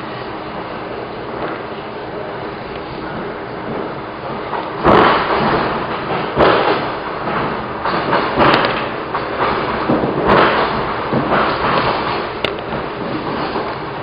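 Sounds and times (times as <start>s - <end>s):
train carriage running noise: 0.0s - 14.0s
loud thud: 4.8s - 12.1s.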